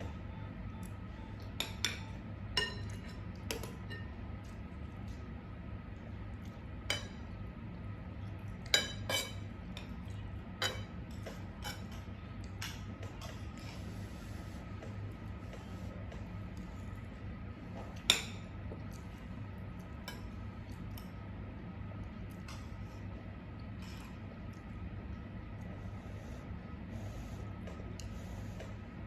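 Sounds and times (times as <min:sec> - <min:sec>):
steady low hum: 0:00.0 - 0:29.0
cutlery clinking against plates: 0:01.6 - 0:04.2, 0:08.6 - 0:13.4.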